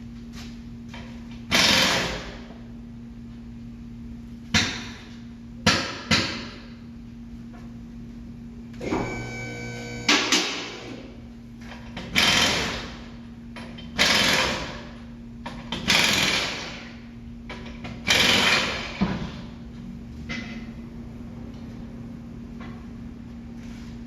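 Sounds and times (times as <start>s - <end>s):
pneumatic impact wrench: 1.5s - 2.4s, 12.0s - 13.1s, 14.0s - 14.9s, 15.7s - 17.0s, 17.9s - 19.3s
short whine: 8.8s - 11.0s.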